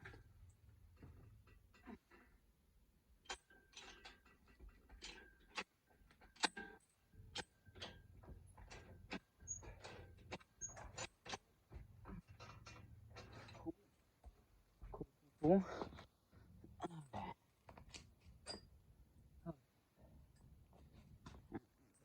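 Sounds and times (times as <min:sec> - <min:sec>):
faint metallic clicks and knocks: 0:00.0 - 0:15.2.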